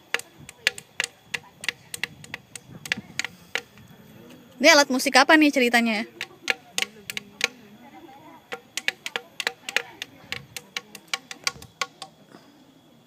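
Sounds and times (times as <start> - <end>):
hand taps on found objects: 0.0 - 3.9, 6.2 - 7.6, 8.5 - 12.2.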